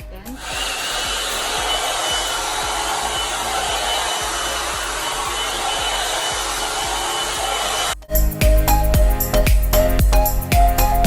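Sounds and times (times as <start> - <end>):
hair dryer blowing air: 0.4 - 8.0.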